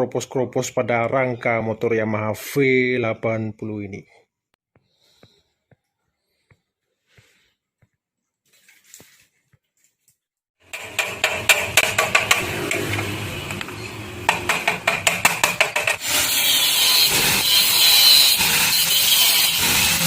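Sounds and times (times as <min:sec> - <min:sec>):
sharp metal taps: 0:10.7 - 0:16.0.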